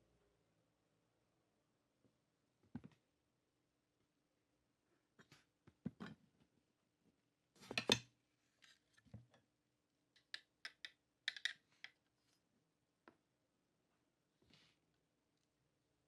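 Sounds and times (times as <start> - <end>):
small parts clicking and tapping: 10.1 - 12.0.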